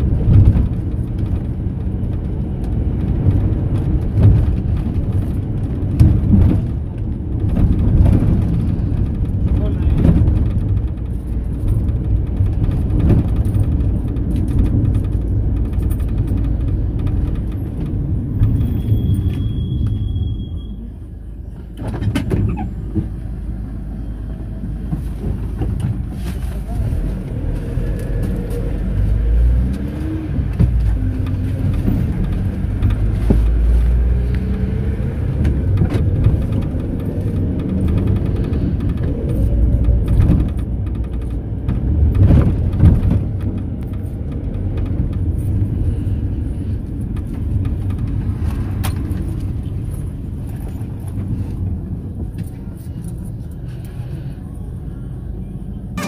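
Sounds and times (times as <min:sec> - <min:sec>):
minibus engine and road rumble: 0:00.0 - 0:56.0
short high squeal: 0:18.6 - 0:21.0.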